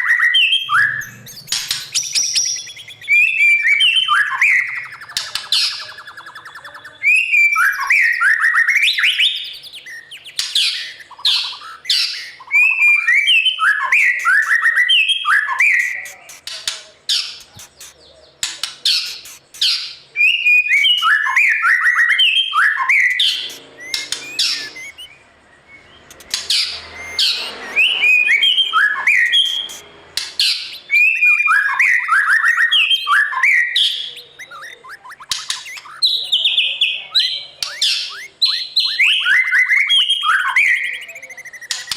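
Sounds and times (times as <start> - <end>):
bird singing fluty whistles: 0.0 - 16.5, 19.0 - 29.8, 30.4 - 41.9
bird sharp clicks: 1.3 - 3.2, 4.7 - 6.7, 15.8 - 20.0, 23.4 - 25.1, 26.1 - 27.4, 34.4 - 36.0, 37.6 - 38.3.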